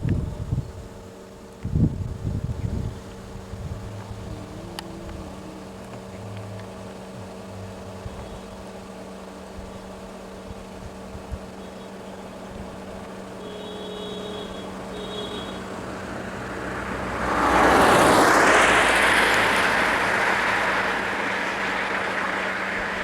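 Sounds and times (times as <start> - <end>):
low engine hum: 0.0 - 23.0
motor vehicle passing by: 2.4 - 8.9, 14.7 - 23.0.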